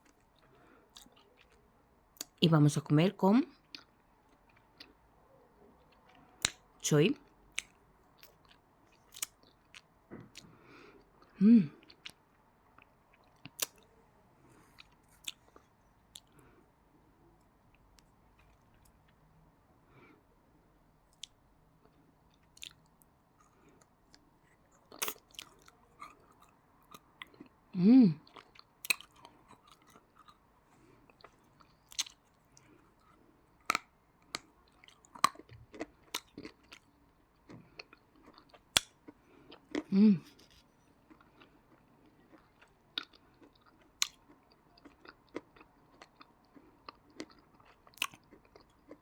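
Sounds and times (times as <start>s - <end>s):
chewing crunchy clay: 22.3s - 27.6s, 28.2s - 49.0s.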